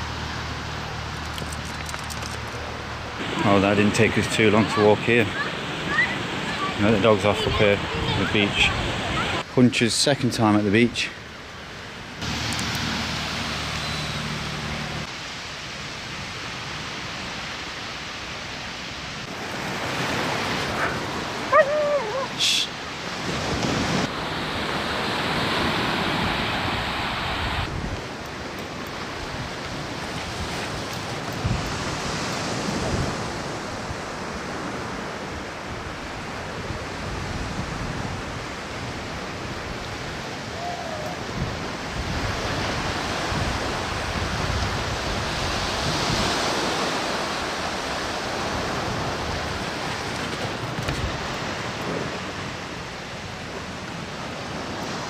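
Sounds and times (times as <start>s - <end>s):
sea waves breaking: 0.0s - 55.0s
wind buffeting microphone: 25.3s - 55.0s.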